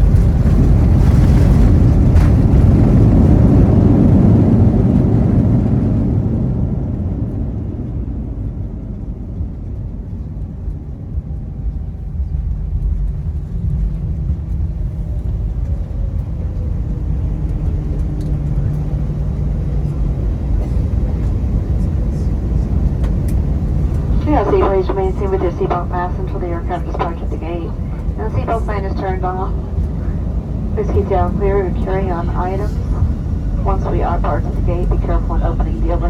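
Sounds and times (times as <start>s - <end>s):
runway rumble: 11.8s - 36.0s
jet engines roaring: 23.3s - 36.0s.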